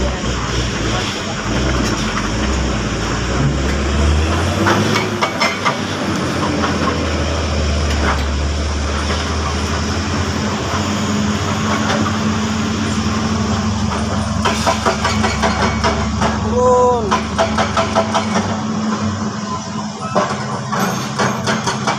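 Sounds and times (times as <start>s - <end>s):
diesel engine drone: 0.0s - 21.9s
metallic rattles and knocks: 13.9s - 16.4s.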